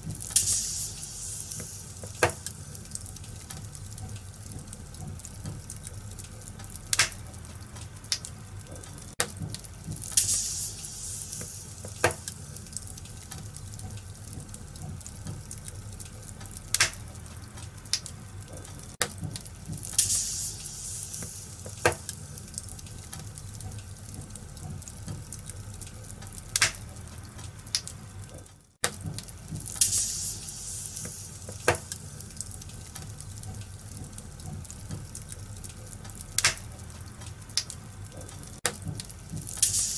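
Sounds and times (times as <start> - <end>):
fire hissing: 0.0 - 28.2, 29.1 - 39.9
fire popping: 0.0 - 39.9
wood fire crackling: 0.0 - 39.9.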